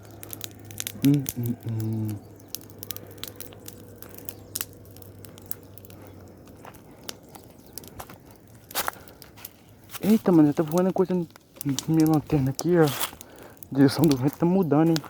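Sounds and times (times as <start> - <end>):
bonfire crackling: 0.0 - 15.0
hum-like voice: 0.9 - 2.3.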